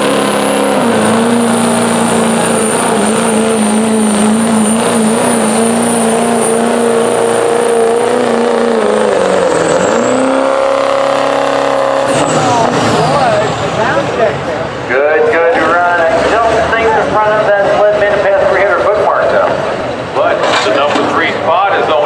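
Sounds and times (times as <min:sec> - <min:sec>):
diesel engine at high revs: 0:00.0 - 0:22.0.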